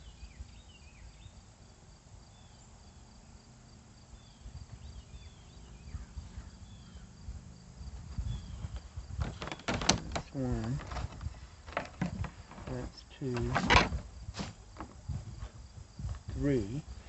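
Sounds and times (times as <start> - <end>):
insects chirping: 0.0 - 17.0
faint low handling knocks: 8.0 - 16.4.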